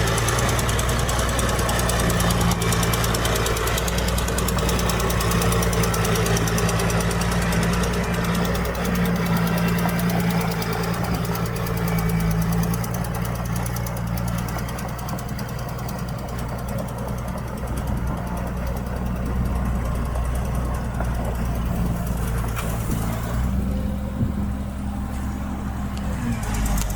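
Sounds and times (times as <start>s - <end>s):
engine knocking clatter: 0.0s - 26.9s
heavy diesel engine running: 0.0s - 26.9s.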